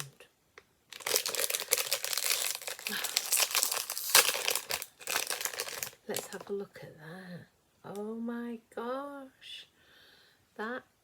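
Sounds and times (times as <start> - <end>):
packaging crinkling and tearing: 0.9 - 6.4.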